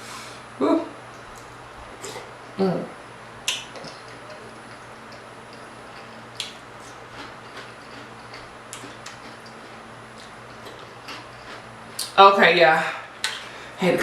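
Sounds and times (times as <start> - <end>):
steady low hum: 0.0 - 14.0
eating clicks and smacks: 3.4 - 12.2, 13.2 - 13.5.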